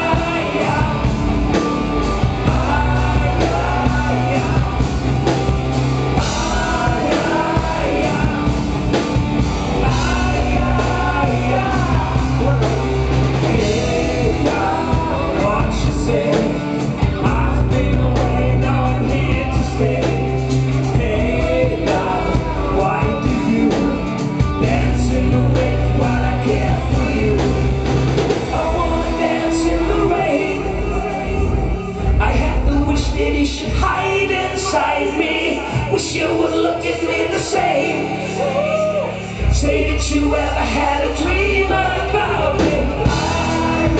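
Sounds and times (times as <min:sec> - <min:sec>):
lead guitar line bending: 0:00.0 - 0:33.3
live rock band playing: 0:00.0 - 0:43.9.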